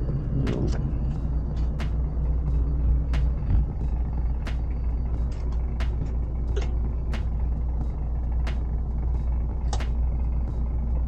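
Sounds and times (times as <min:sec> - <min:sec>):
low machinery drone: 0:00.0 - 0:11.0.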